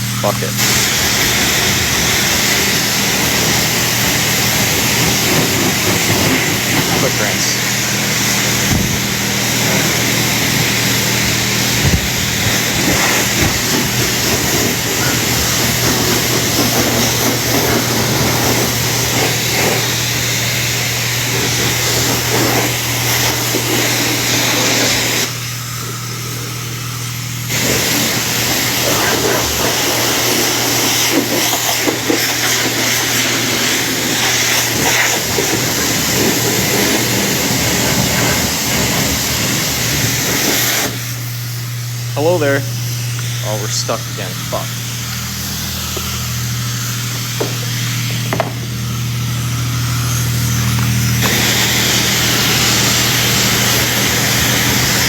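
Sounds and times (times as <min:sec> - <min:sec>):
spray wand hissing water: 0:00.0 - 0:55.0.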